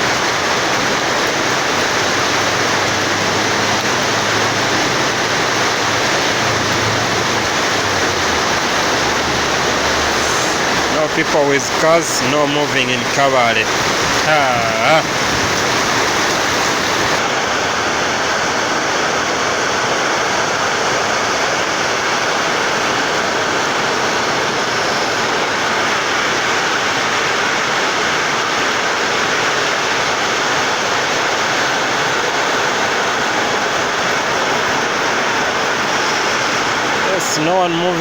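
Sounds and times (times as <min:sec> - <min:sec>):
heavy rain falling: 0:00.0 - 0:17.3, 0:30.4 - 0:38.0.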